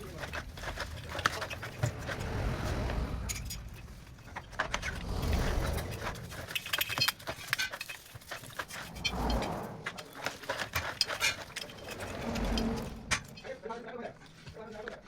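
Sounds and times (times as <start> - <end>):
low rumble: 0.5 - 6.8, 8.6 - 10.6, 11.4 - 13.6
metal tools clinking and scraping: 5.7 - 14.5.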